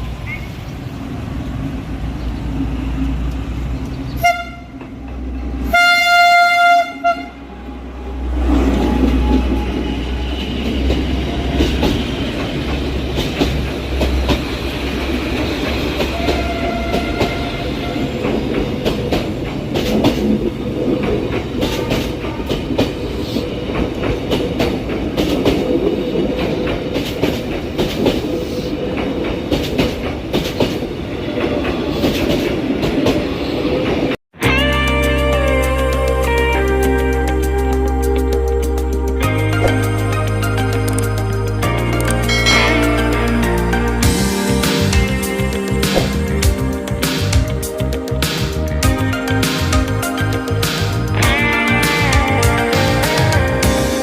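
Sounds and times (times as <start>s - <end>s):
train rumbling past: 0.0s - 54.0s
wheels clicking over rail joints: 2.9s - 7.2s, 8.4s - 34.2s
train horn: 4.2s - 4.9s, 5.6s - 7.7s, 16.0s - 18.3s, 42.3s - 44.4s.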